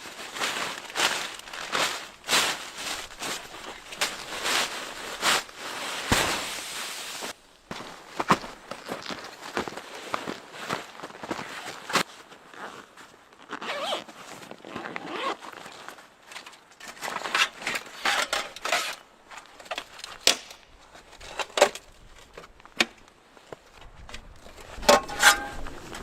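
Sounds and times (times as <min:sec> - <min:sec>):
rustling and scraping swishes: 0:00.3 - 0:07.4, 0:24.5 - 0:26.0.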